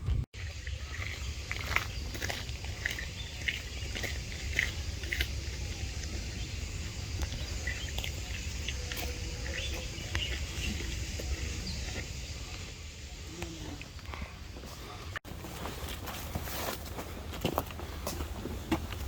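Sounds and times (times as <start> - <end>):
low forest rumble: 0.0 - 15.2.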